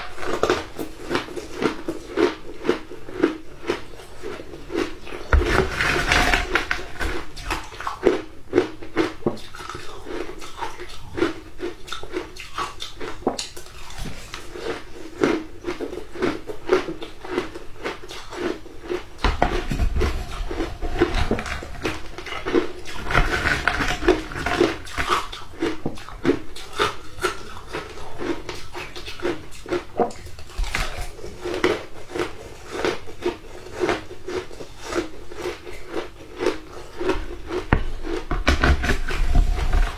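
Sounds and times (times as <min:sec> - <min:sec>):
person crunching ice: 0:00.1 - 0:08.6, 0:18.4 - 0:29.8, 0:30.6 - 0:39.9.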